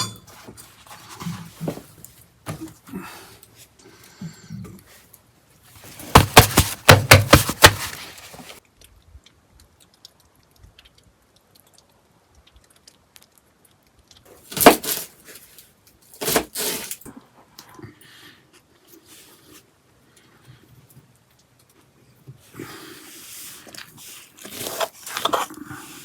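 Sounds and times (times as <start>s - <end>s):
sharp cracks and snaps: 7.6s - 17.1s.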